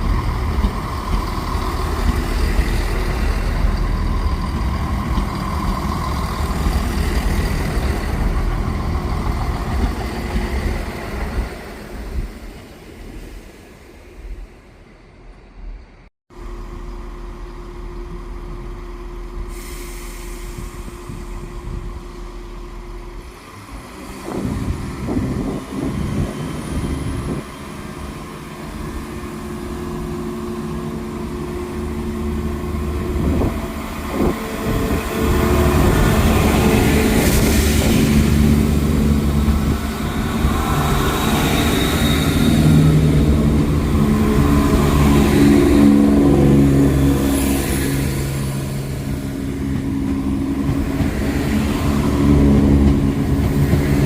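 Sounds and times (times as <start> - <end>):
train clanks and knocks: 0.0 - 12.6, 17.8 - 54.0.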